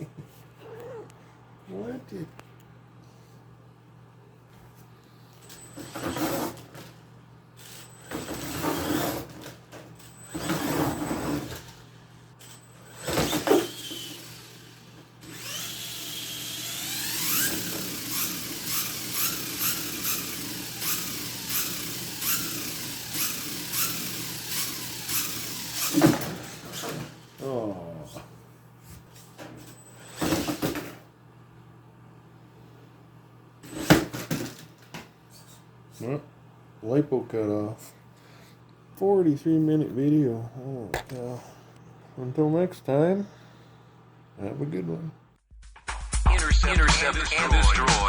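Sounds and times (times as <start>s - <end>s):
electric motor whining: 12.9s - 27.0s.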